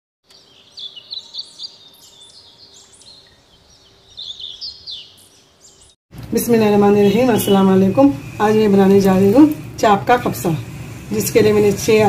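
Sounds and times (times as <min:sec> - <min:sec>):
small birds chirping and twittering: 0:00.2 - 0:06.0.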